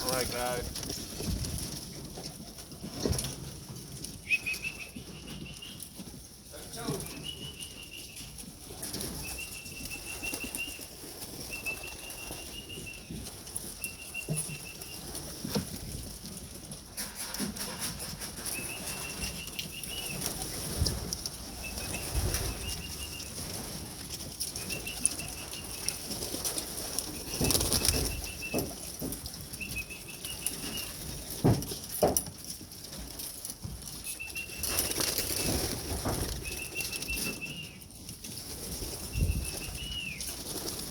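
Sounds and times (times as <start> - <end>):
pigeon wings flapping: 6.8 - 32.2, 33.0 - 40.9.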